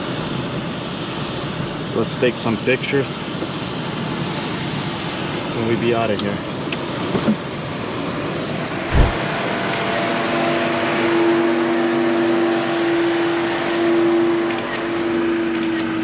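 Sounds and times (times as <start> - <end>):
air-conditioning blower rushing: 8.8 - 9.3
low thump: 8.9 - 9.2.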